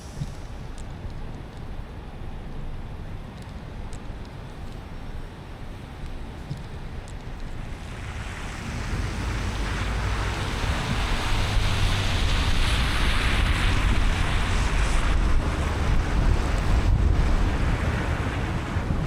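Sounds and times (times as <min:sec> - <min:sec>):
tyre hiss on wet road: 0:00.0 - 0:01.3, 0:07.6 - 0:19.0
low road rumble: 0:00.0 - 0:19.0
rain: 0:00.0 - 0:19.0.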